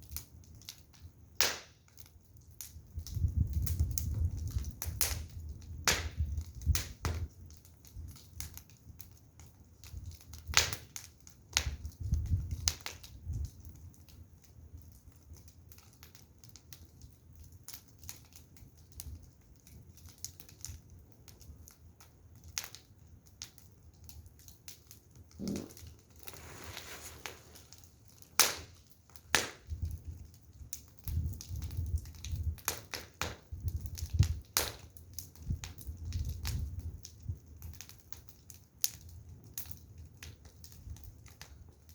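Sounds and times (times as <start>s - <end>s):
low rumble of burning: 0.0s - 41.9s
wood fire crackling: 0.0s - 41.9s
short hiss: 25.4s - 27.7s.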